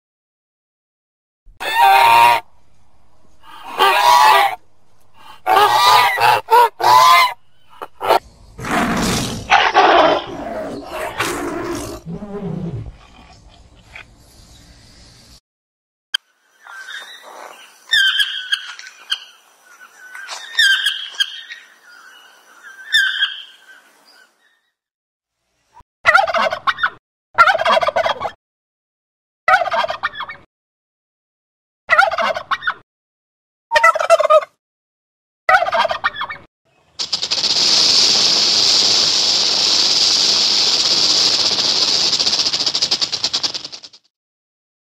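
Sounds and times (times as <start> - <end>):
turkey gobbling: 1.6 - 2.5, 3.4 - 4.6, 5.2 - 8.2, 26.1 - 28.4, 29.5 - 30.4, 31.9 - 32.8, 33.8 - 34.5, 35.5 - 36.4
toucan calling: 3.4 - 4.6, 5.2 - 8.2
snake hissing: 8.0 - 13.3, 37.0 - 43.8.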